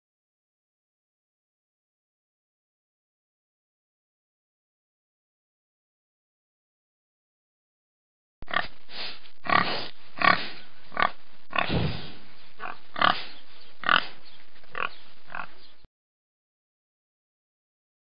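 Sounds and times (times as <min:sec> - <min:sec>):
pig oinking: 0:08.5 - 0:08.7, 0:09.4 - 0:15.6.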